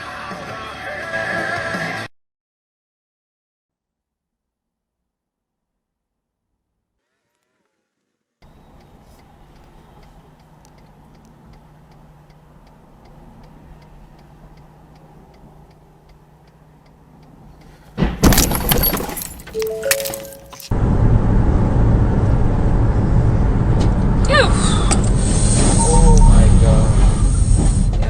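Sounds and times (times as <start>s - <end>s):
vehicle running: 8.4s - 28.0s
loud crash: 18.0s - 20.6s.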